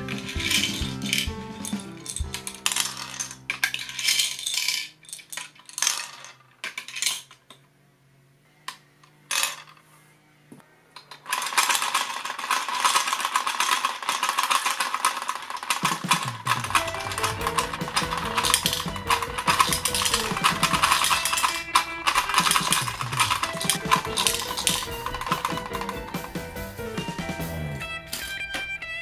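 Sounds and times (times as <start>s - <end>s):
plastic toy parts clattering: 0.2s - 7.7s, 8.7s - 9.8s, 10.9s - 26.4s, 28.1s - 29.0s
toy mechanical rattle: 3.6s - 7.6s, 11.0s - 26.3s
clicks: 14.7s - 28.9s.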